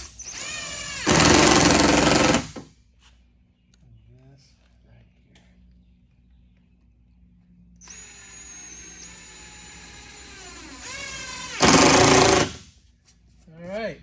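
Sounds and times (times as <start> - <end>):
cordless drill whining: 0.0 - 2.6, 7.8 - 12.6
drill grinding into wood: 0.0 - 2.6, 7.8 - 12.6.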